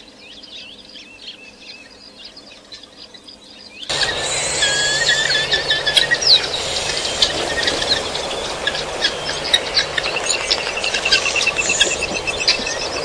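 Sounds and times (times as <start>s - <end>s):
wild birds chirping and whistling: 0.0s - 13.0s
rapid run of bird notes: 3.9s - 13.0s.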